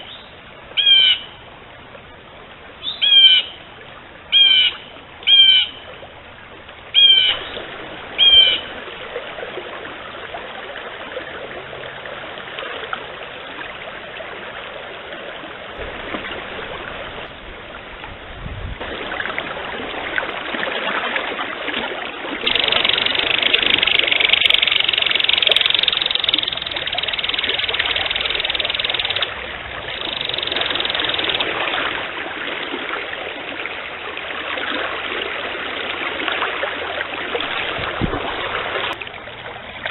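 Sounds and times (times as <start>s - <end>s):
bird calls sweeping downward: 0.0s - 1.3s, 2.8s - 3.5s, 4.3s - 5.8s, 6.9s - 8.7s, 22.5s - 31.9s
stream rushing: 0.0s - 39.9s.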